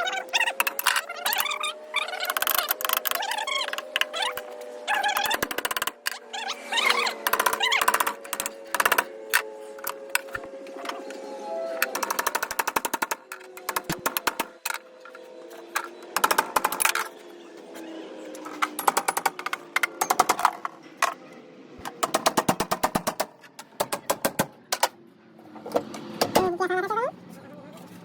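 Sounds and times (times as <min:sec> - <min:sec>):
pneumatic impact wrench hammering: 0:00.5 - 0:06.2, 0:11.8 - 0:14.8.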